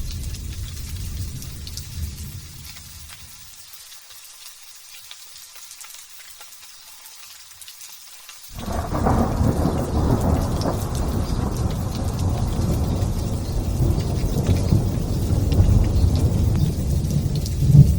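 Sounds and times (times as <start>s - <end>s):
thunder rumbling: 0.0s - 3.1s, 8.5s - 17.9s
light drizzle pattering: 0.0s - 17.9s.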